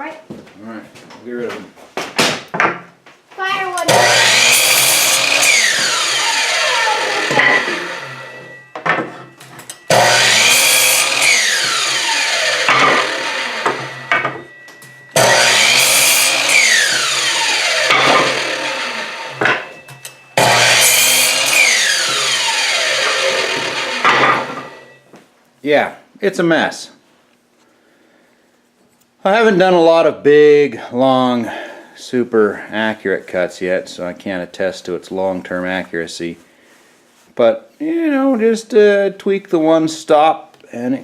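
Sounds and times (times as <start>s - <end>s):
miter saw cutting wood: 3.9s - 8.6s, 9.9s - 14.5s, 15.1s - 19.8s, 20.4s - 25.0s.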